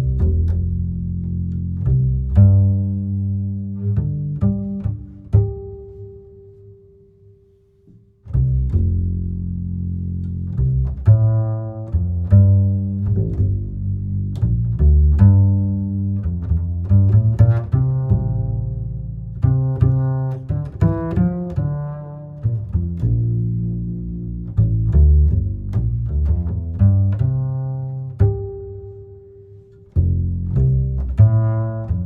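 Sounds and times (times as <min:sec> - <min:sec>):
music with deep low notes: 0:00.0 - 0:06.9, 0:08.2 - 0:32.0
plucked notes: 0:08.2 - 0:32.0.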